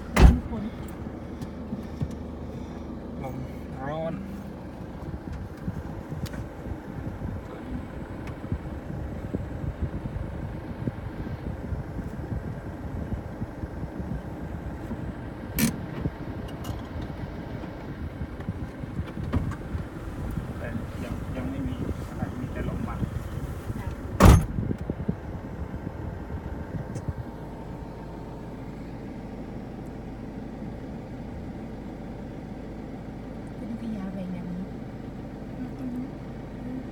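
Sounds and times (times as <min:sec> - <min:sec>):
low vehicle hum: 0:00.0 - 0:36.9
loud thump: 0:00.1 - 0:00.7, 0:24.2 - 0:24.6
wind buffeting microphone: 0:04.5 - 0:27.8.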